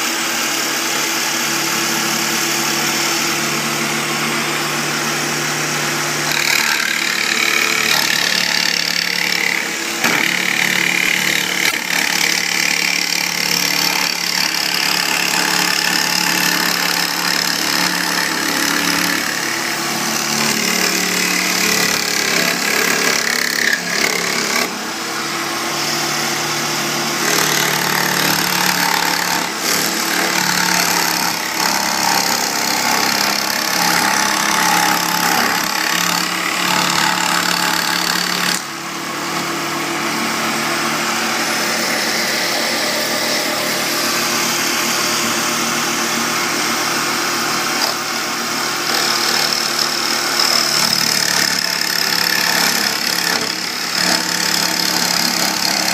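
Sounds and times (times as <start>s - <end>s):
steady machine hum: 38.6s - 47.6s.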